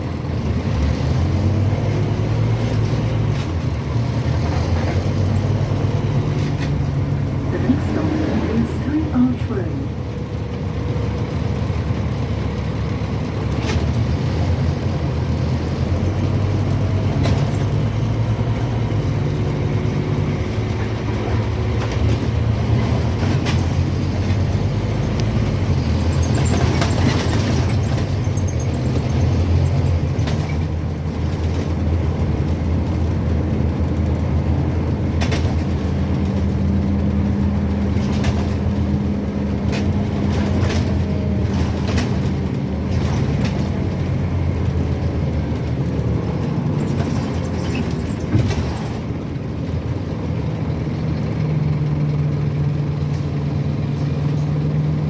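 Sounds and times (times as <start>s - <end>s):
bus engine droning: 0.0s - 55.0s
clicks and knocks from bus body: 13.4s - 18.3s, 20.5s - 54.7s.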